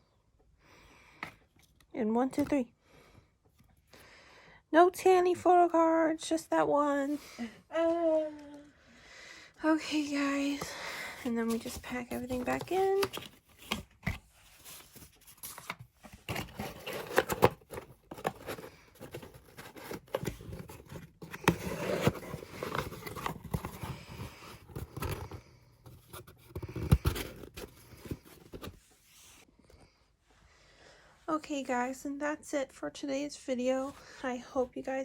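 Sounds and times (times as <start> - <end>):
paper and card rustling: 10.6 - 29.4.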